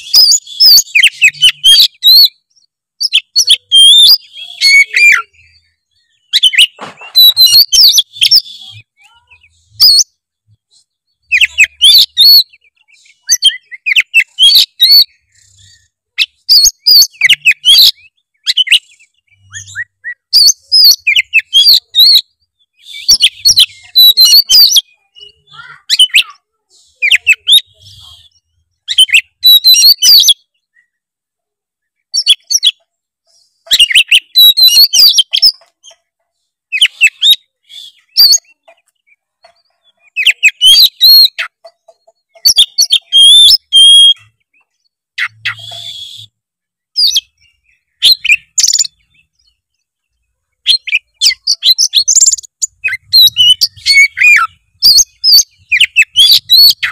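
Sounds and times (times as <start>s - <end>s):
bird singing high twittering phrases: 0.0s - 56.9s.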